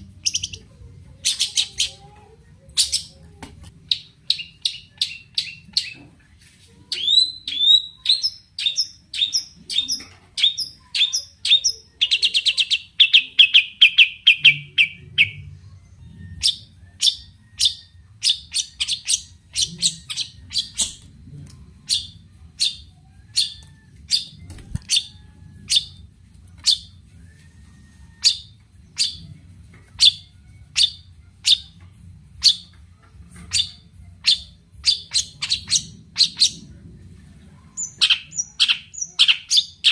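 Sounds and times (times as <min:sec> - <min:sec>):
bird singing: 0:06.9 - 0:21.0, 0:32.4 - 0:36.6, 0:37.8 - 0:39.9.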